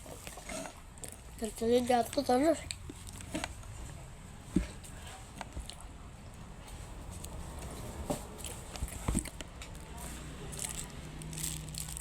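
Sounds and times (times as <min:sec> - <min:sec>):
person chewing soft bun: 0:10.5 - 0:12.0.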